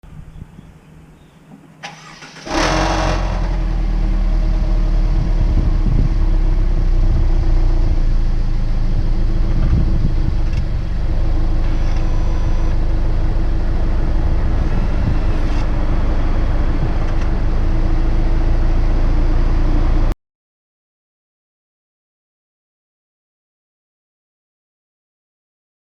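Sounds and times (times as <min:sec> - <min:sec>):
car engine starting and running: 0:01.5 - 0:20.2
exhaust clattering rattle: 0:01.7 - 0:18.0.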